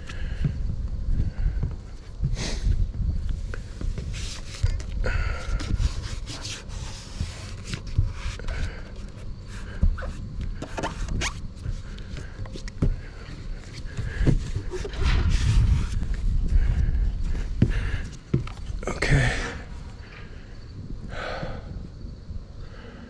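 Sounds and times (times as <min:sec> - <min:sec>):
scraping and rustling on roof: 0:03.4 - 0:18.8.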